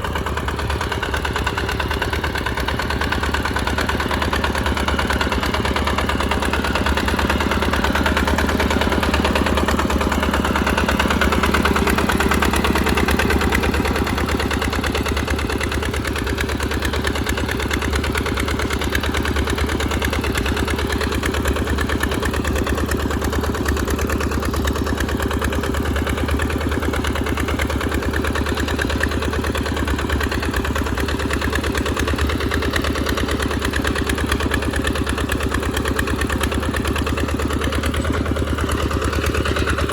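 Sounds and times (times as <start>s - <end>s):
tractor engine running under load: 0.0s - 39.9s.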